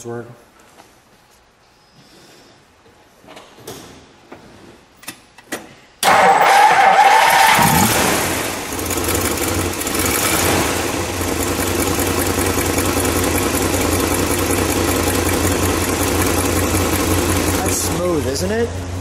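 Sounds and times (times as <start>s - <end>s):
car engine idling: 6.0s - 19.0s.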